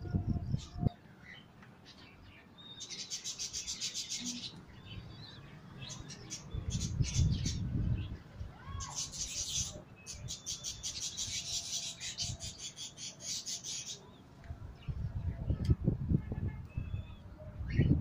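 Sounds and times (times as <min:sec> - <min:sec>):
birds chirping: 0:00.0 - 0:15.7.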